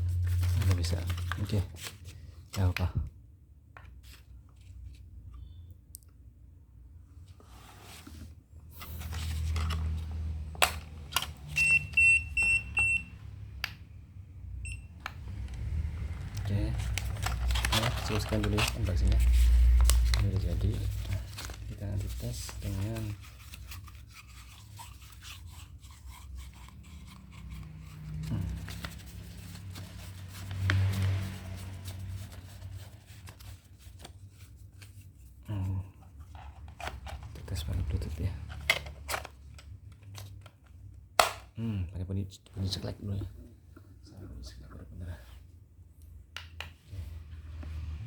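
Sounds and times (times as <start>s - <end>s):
hands handling a printer: 15.1s - 23.2s
rustling: 16.0s - 35.4s.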